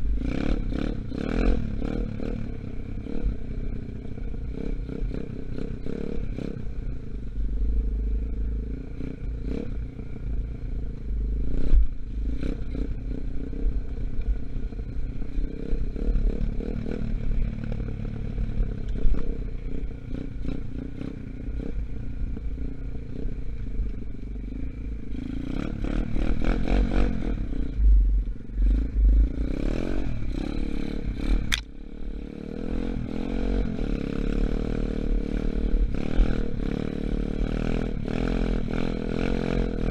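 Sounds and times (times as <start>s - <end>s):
dirt bike engine revving: 24.5s - 39.9s
sharp click: 31.4s - 31.7s.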